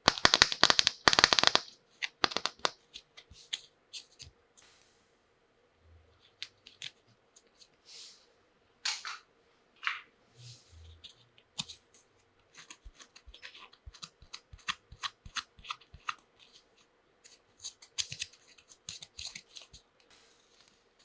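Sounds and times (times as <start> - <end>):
plastic toy pieces clicking: 0.0 - 2.7.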